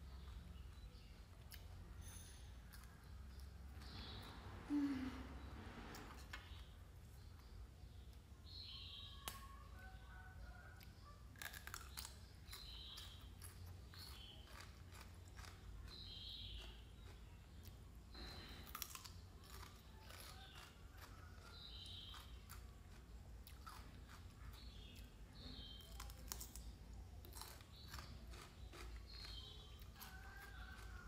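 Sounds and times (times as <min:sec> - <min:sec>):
crunching of raw vegetable: 0:11.2 - 0:31.0.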